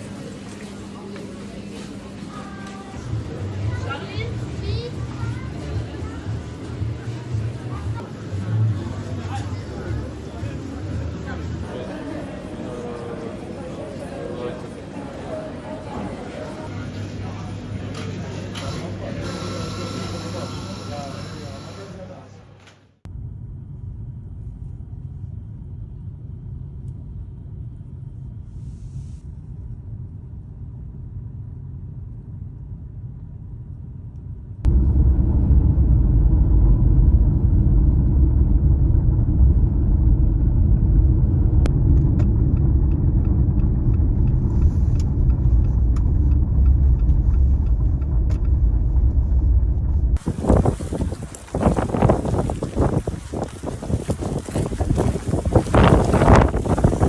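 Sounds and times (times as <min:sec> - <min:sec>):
car road and engine rumble: 0:34.6 - 0:57.0
gusty wind noise: 0:34.7 - 0:57.0.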